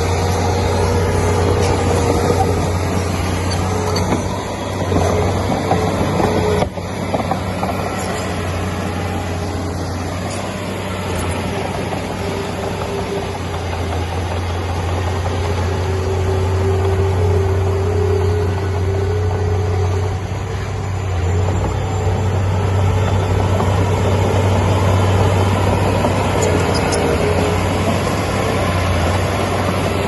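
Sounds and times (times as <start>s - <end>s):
heavy diesel engine droning: 0.0s - 30.0s
high whine: 0.0s - 30.0s.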